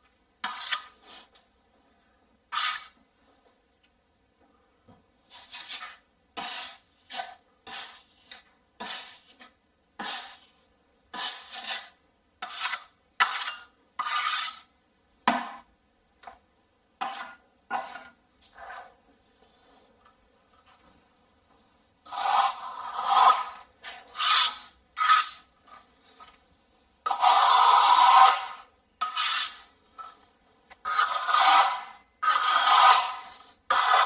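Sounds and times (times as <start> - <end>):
taping knife scraping compound: 0.4 - 1.4, 2.5 - 3.0, 5.3 - 14.7, 17.0 - 20.9, 22.0 - 34.0.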